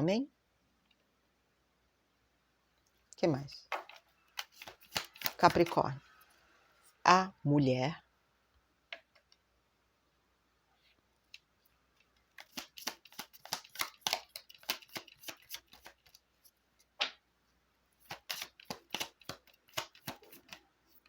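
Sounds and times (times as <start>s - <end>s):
cards being shuffled: 3.7s - 5.8s, 12.3s - 17.2s, 18.0s - 21.0s.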